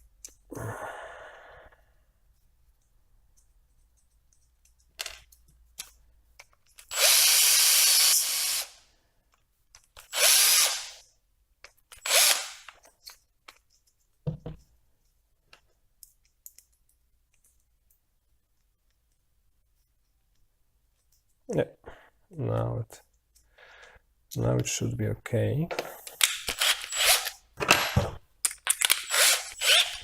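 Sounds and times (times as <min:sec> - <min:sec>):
power drill cutting plastic: 0:06.9 - 0:08.8, 0:10.1 - 0:11.0, 0:12.0 - 0:12.7, 0:26.5 - 0:27.4, 0:28.9 - 0:30.0.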